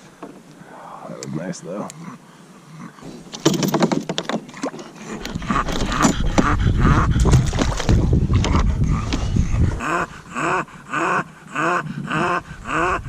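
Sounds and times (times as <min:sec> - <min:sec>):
dog breathing heavily: 0:05.0 - 0:12.6.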